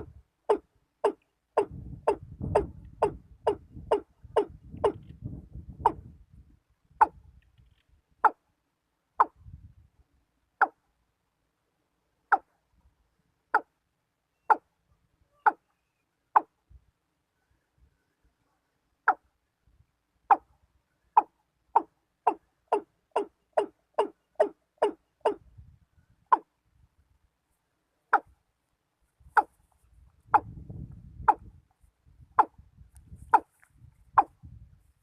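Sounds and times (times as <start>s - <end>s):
bird decoy calling: 0.0s - 5.1s, 15.3s - 16.6s, 20.3s - 25.4s.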